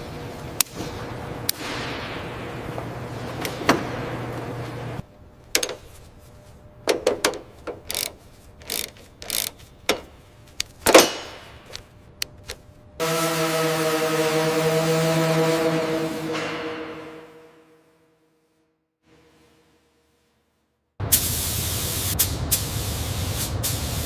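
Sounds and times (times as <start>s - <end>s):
steady hum: 0.0s - 18.2s
pitched droning hum: 0.0s - 18.4s
mechanical clicks and knocks: 5.5s - 5.9s, 6.8s - 12.6s.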